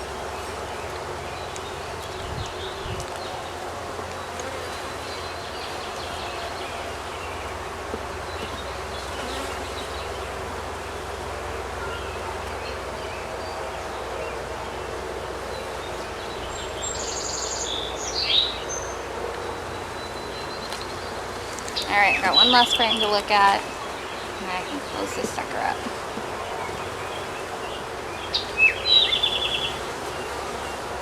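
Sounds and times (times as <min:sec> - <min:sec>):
honey bees buzzing: 0:00.0 - 0:31.0
bird chirping: 0:21.8 - 0:29.8.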